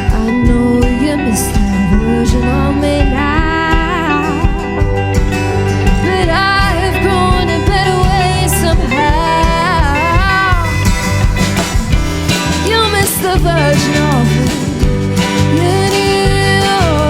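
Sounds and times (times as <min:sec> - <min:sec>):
bass: 0:00.0 - 0:17.0
guitar: 0:00.0 - 0:17.0.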